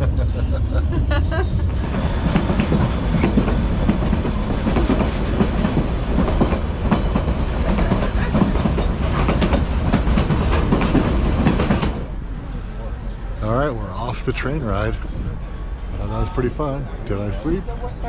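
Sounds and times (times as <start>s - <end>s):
loud low train rumble: 0.0s - 18.0s
train wheels clattering on rails: 1.7s - 12.6s.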